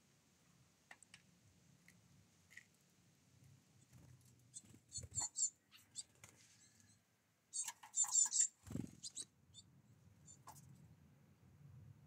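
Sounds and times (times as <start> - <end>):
bird high chirps: 4.5 - 10.6.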